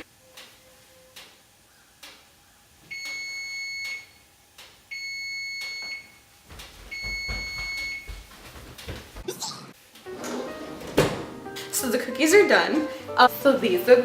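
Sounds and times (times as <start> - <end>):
oven timer beeping: 2.9 - 4.2, 4.9 - 6.2, 6.9 - 8.1.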